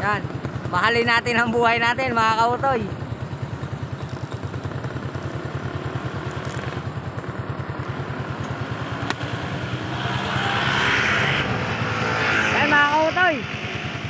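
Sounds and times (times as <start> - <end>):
motorcycle engine idling: 0.0 - 9.9.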